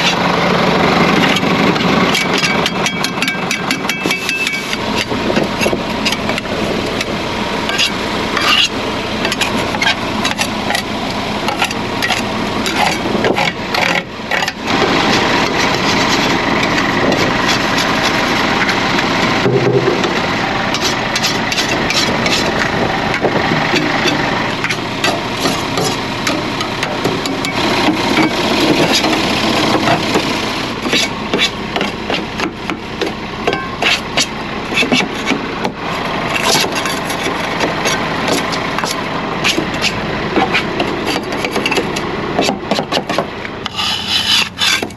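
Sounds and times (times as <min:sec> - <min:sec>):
truck engine running: 0:00.0 - 0:44.9
sharp knocks and clicks: 0:19.4 - 0:20.2.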